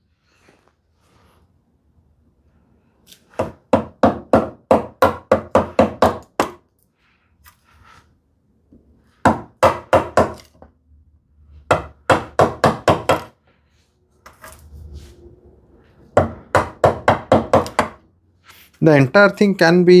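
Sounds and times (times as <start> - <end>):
chisel knocking into wood: 3.4 - 6.6, 9.3 - 10.7, 11.7 - 13.3, 16.2 - 18.0.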